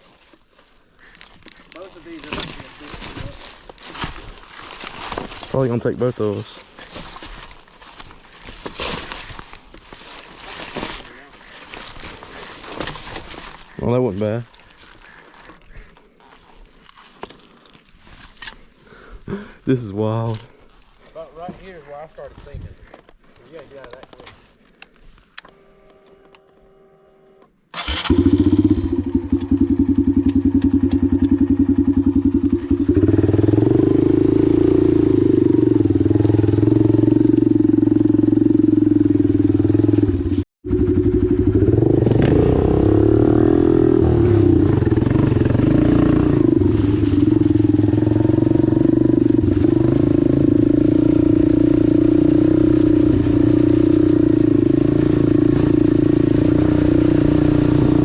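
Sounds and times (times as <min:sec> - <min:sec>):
dirt bike engine running hard: 0:28.0 - 0:58.0.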